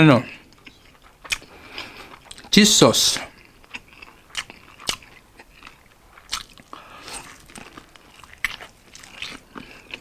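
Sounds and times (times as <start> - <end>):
crunching of fried chicken: 0.0 - 10.0
chewing: 0.3 - 2.6, 3.2 - 10.0.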